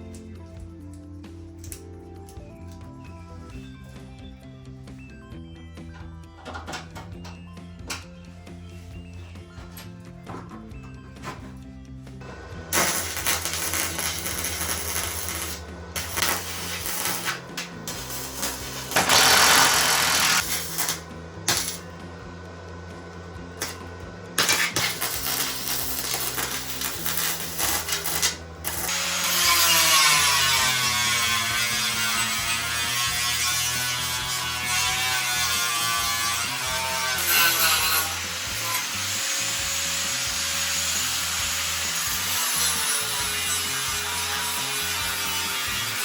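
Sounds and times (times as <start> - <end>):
background music with bass line: 0.0 - 46.0
power tool whirring: 12.2 - 46.0.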